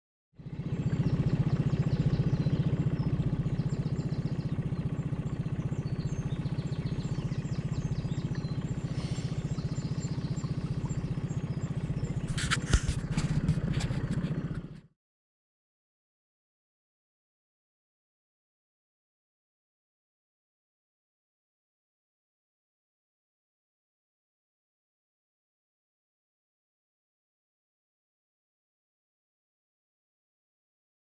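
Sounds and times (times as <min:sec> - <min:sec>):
outboard motor running: 0:00.4 - 0:14.9.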